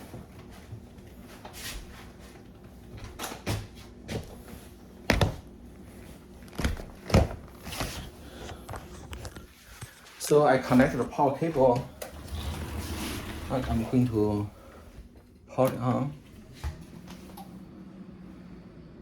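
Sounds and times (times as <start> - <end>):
knocks and clicks handling computer case: 6.5 - 8.0.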